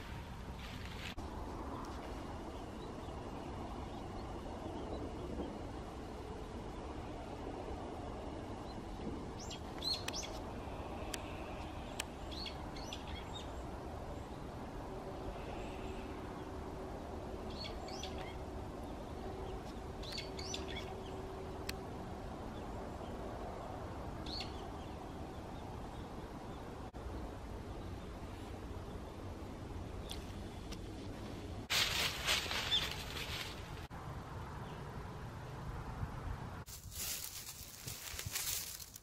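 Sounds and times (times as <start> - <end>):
low background noise: 0.0 - 39.0
small birds chirping: 8.6 - 14.5, 17.4 - 21.8, 32.4 - 33.9.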